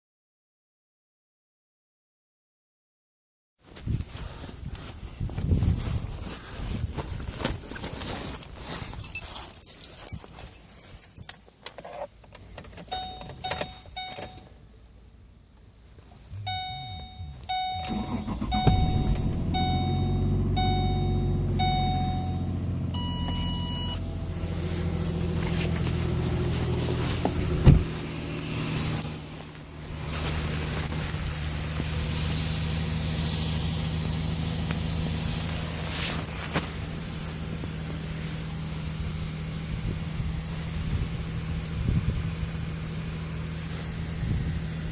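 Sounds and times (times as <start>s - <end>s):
keys rattling: 8.8s - 11.6s
car engine cranking and idling: 11.5s - 44.9s
dashboard warning chime beeping: 12.9s - 14.5s, 16.4s - 24.1s.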